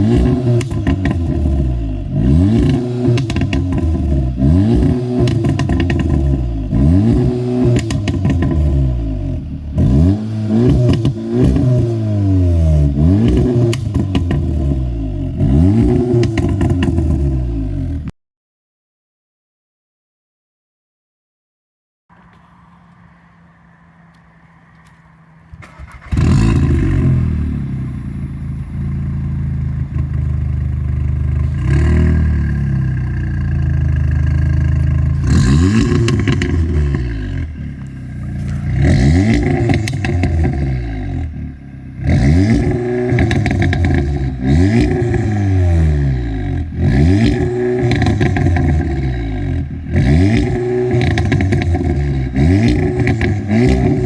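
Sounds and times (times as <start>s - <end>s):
exhaust crackles and pops: 0.0s - 1.6s, 2.5s - 4.2s, 4.8s - 6.4s, 7.6s - 8.8s, 13.2s - 14.6s, 24.1s - 41.3s, 42.2s - 45.3s, 47.1s - 54.0s
car engine revving: 0.0s - 18.0s, 22.1s - 54.0s.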